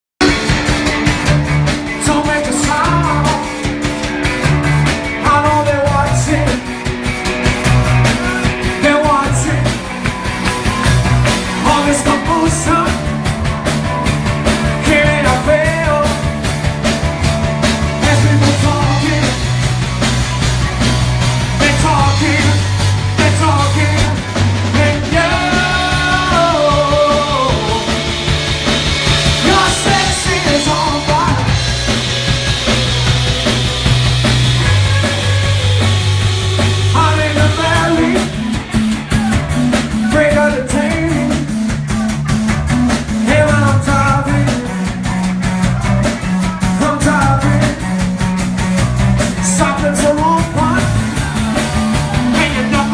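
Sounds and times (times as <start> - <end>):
drums: 0.0 - 52.9
bass guitar: 0.2 - 52.9
guitar: 0.2 - 52.9
person singing: 1.9 - 3.7, 5.2 - 6.7, 8.0 - 10.0, 11.4 - 13.1, 14.6 - 16.3, 17.8 - 19.6, 21.5 - 28.2, 29.3 - 31.7, 34.7 - 42.4, 43.1 - 48.0, 49.4 - 52.9.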